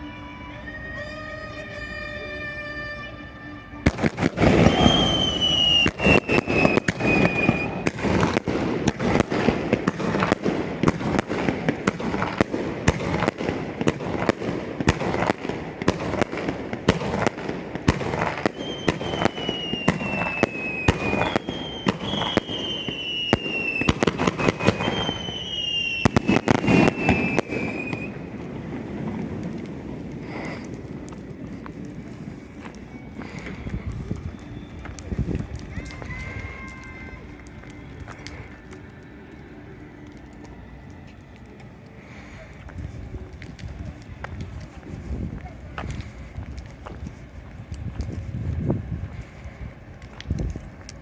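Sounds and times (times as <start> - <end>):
firework whistles sliding down: 0.0 - 14.0, 17.9 - 28.4, 30.2 - 42.4
fireworks bangs: 3.8 - 51.0.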